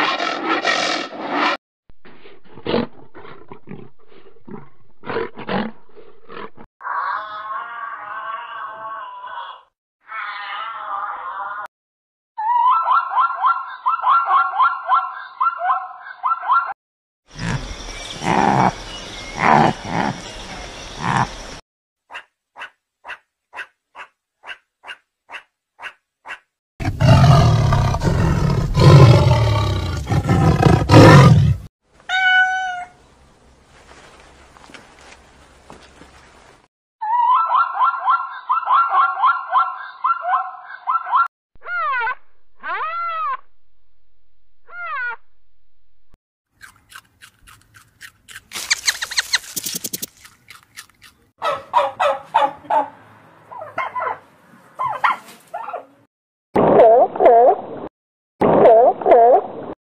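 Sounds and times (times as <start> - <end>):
big cat roaring: 2.4 - 6.7, 26.8 - 31.7.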